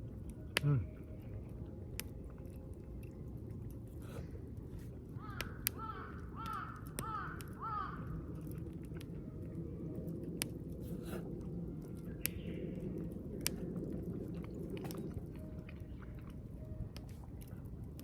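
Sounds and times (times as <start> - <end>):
close-up chewing: 0.3 - 5.8, 8.3 - 12.4, 13.0 - 18.0
crow cawing: 5.2 - 8.1.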